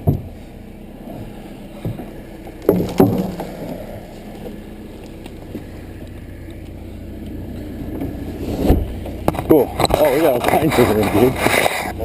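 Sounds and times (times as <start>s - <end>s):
backhoe engine running: 0.0s - 12.0s
loud knocks: 1.8s - 3.8s.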